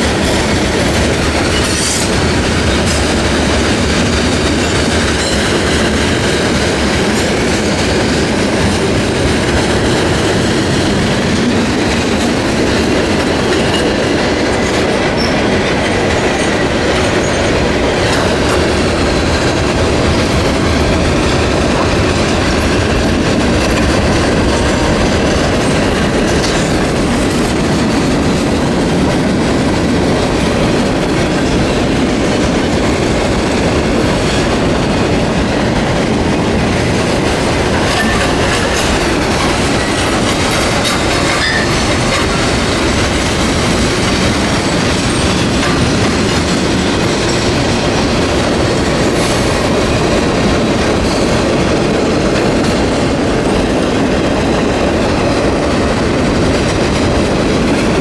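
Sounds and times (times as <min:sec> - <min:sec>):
freight train wheels on rails: 0:00.0 - 0:58.0
high wheel squeal: 0:41.3 - 0:41.7.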